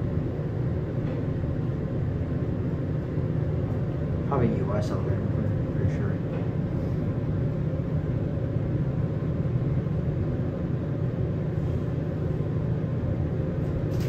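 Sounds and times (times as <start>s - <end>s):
elevator rumbling and humming: 0.0s - 14.0s.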